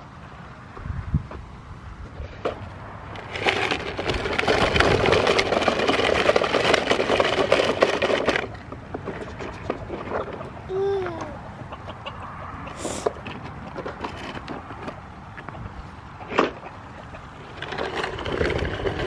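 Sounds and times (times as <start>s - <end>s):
chickens clucking: 8.4s - 19.0s.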